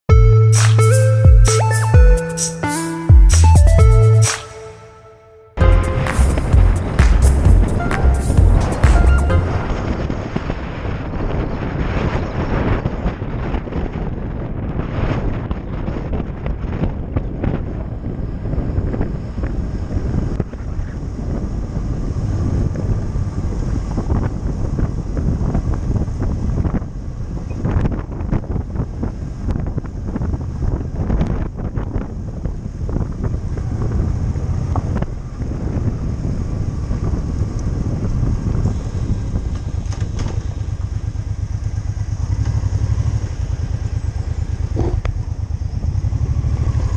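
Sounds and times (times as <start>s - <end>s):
motorcycle engine running: 5.6s - 10.0s, 17.7s - 46.9s
wind buffeting microphone: 9.4s - 46.9s.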